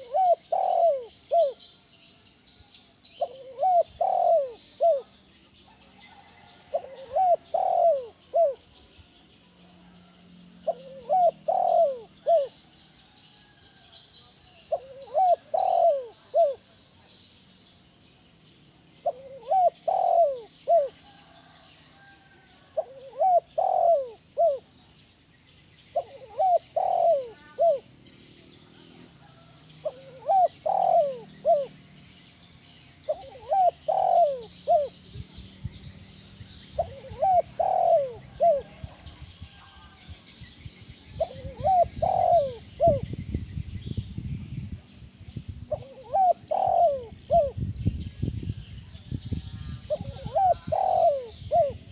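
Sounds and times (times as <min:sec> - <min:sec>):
dove cooing: 0:00.0 - 0:01.6, 0:03.2 - 0:05.1, 0:06.0 - 0:08.8, 0:09.8 - 0:12.6, 0:14.7 - 0:16.7, 0:19.0 - 0:24.8, 0:25.9 - 0:27.9, 0:29.4 - 0:31.8, 0:33.0 - 0:35.0, 0:36.8 - 0:39.2, 0:41.2 - 0:43.1, 0:45.7 - 0:47.6, 0:49.9 - 0:51.9.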